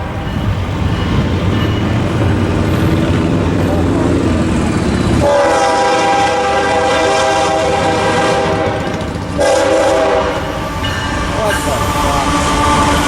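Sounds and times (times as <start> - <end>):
locomotive air horn blasts: 5.2 - 13.0.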